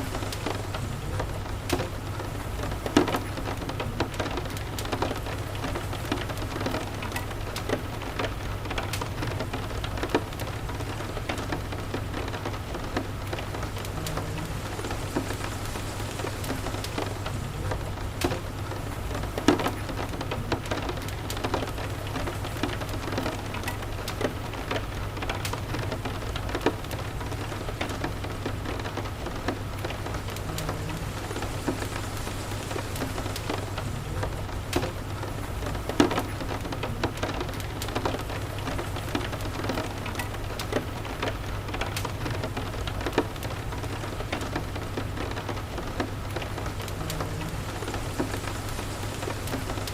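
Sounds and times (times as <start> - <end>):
steady rain: 0.0 - 49.9
wood fire crackling: 0.0 - 49.9
low steady rumble: 12.6 - 19.5.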